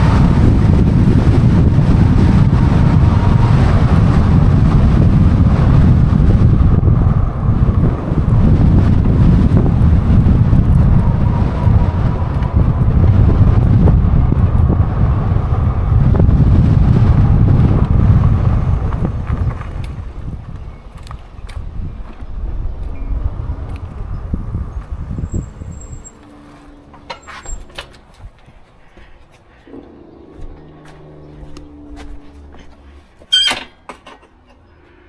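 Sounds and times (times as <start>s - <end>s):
wind buffeting microphone: 0.0s - 33.6s.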